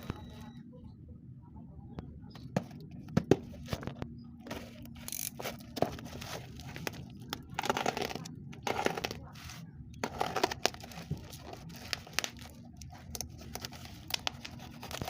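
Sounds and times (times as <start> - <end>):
packaging tearing and rustling: 5.1 - 15.0.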